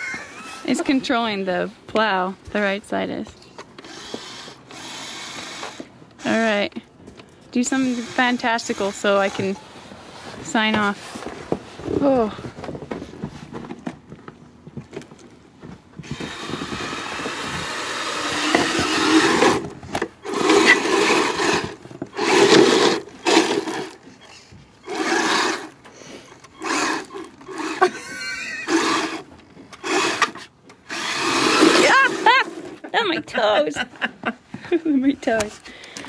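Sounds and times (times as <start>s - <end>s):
electric toy vehicle whirring: 0.0s - 0.8s, 3.8s - 6.5s, 7.6s - 9.6s, 16.0s - 32.8s.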